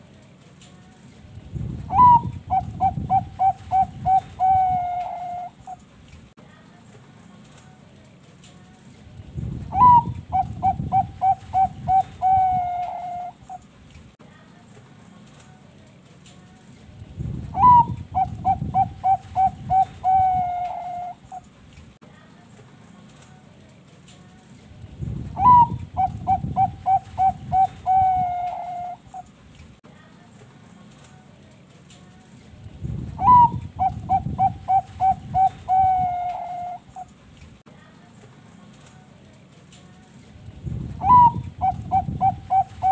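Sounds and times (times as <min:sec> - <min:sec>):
dove cooing: 0:01.9 - 0:05.8, 0:09.7 - 0:13.6, 0:17.6 - 0:21.5, 0:25.4 - 0:29.3, 0:33.2 - 0:37.1, 0:41.0 - 0:42.9.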